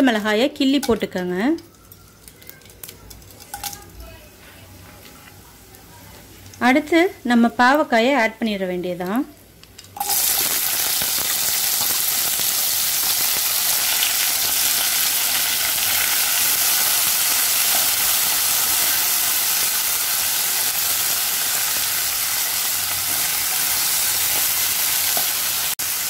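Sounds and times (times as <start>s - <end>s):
vegetables sizzling in oil: 5.6s - 26.0s.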